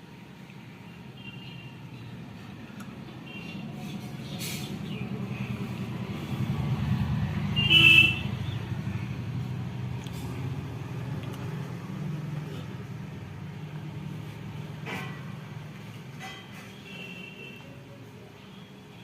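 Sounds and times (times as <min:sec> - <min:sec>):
street traffic rumbling: 0:00.0 - 0:19.0
car horn toot: 0:07.6 - 0:08.3.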